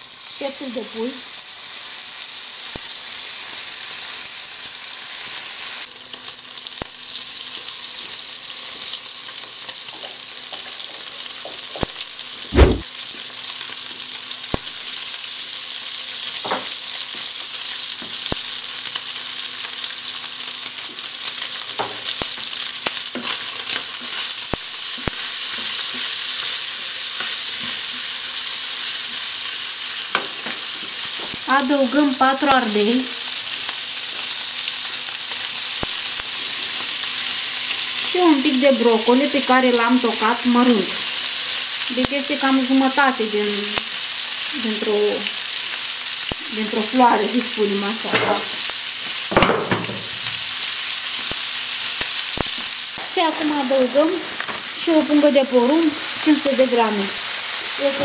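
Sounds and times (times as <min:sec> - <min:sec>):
chicken sizzling in hot oil: 0:00.0 - 0:58.0.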